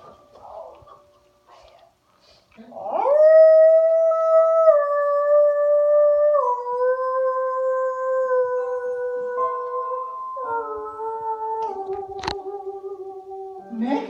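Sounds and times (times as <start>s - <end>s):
long howl: 2.8s - 13.9s.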